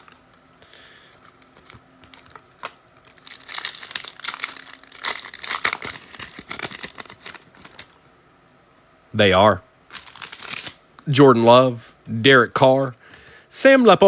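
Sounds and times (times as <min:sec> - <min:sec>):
foil pack tearing and crinkling: 0:01.5 - 0:08.0, 0:09.9 - 0:10.8.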